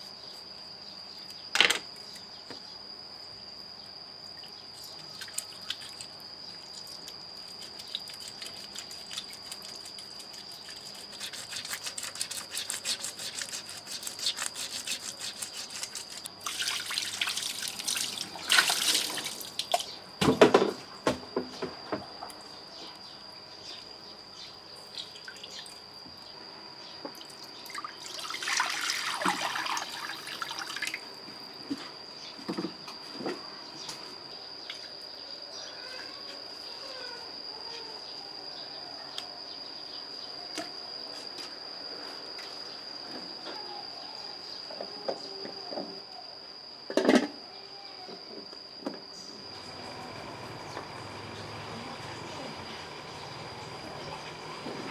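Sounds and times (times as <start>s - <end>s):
water splashing and dripping: 16.4s - 19.9s, 27.7s - 31.0s.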